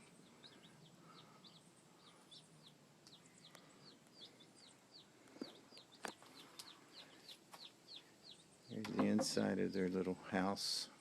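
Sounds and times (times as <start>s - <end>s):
baby chicks peeping: 0.0s - 11.0s.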